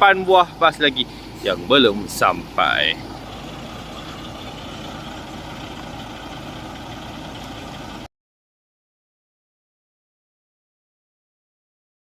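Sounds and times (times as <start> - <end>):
bus diesel engines idling: 0.0 - 8.1.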